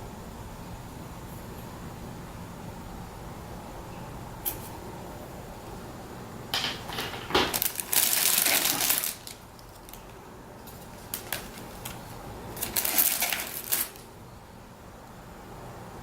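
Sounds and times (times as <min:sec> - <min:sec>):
plastic packaging crinkling: 0:06.9 - 0:14.1.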